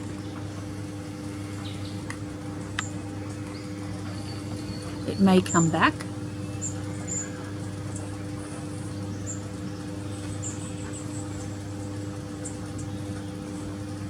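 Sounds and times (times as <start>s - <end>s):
steady low hum: 0.0s - 14.0s
small birds chirping: 0.2s - 13.9s.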